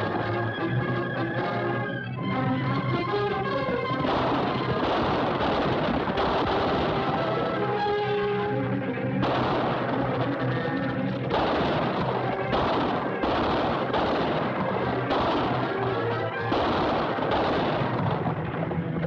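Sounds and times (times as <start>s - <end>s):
dramatic orchestral music: 0.0s - 19.0s
loud noisy crashes: 4.0s - 7.6s, 9.2s - 19.0s.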